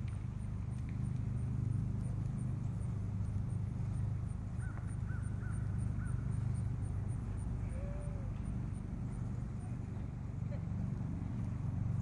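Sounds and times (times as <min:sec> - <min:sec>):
steady low rumble: 0:00.0 - 0:12.0
distant bird calls: 0:02.6 - 0:09.8.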